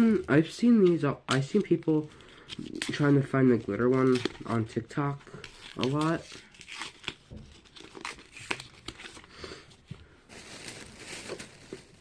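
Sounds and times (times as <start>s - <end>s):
plastic packaging rustling: 0.0s - 12.0s
plastic crinkling: 10.3s - 12.0s.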